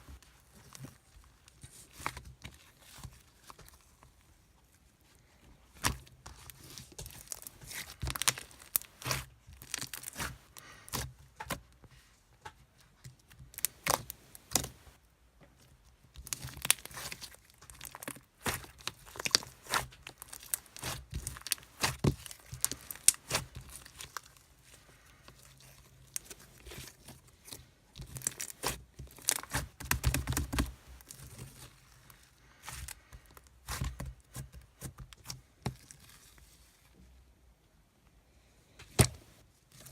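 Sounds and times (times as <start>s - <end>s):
crinkling and tearing: 5.7s - 11.6s, 16.2s - 36.9s.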